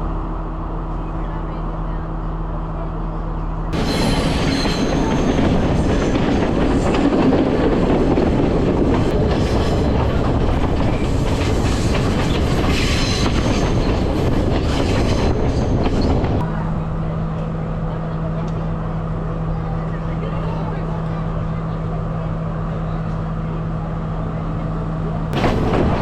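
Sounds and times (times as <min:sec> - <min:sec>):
train wheels clattering on rails: 0:03.8 - 0:16.5, 0:25.4 - 0:26.0.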